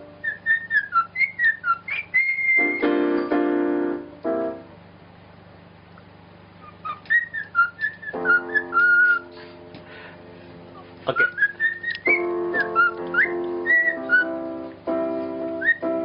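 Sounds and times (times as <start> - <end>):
parrot whistling: 0.2 - 2.9, 6.6 - 9.3, 11.1 - 14.4, 15.6 - 15.9
sustained keyboard notes: 2.6 - 4.8, 6.9 - 16.0.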